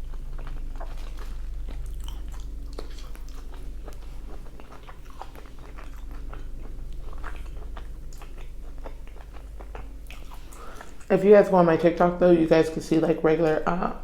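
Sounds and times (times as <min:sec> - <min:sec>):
person chewing food: 0:00.0 - 0:11.1
low steady hum: 0:00.0 - 0:14.0.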